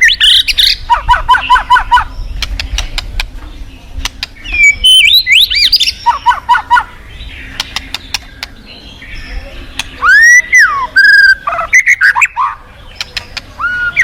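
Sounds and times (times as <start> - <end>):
bird singing: 0.0 - 14.0
bird clicks: 2.4 - 3.4, 4.0 - 4.6, 7.5 - 8.6, 12.9 - 13.6.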